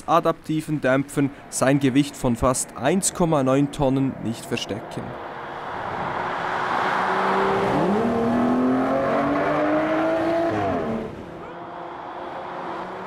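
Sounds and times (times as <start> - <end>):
rushing road noise: 0.0 - 13.0
car engine accelerating: 5.0 - 13.0.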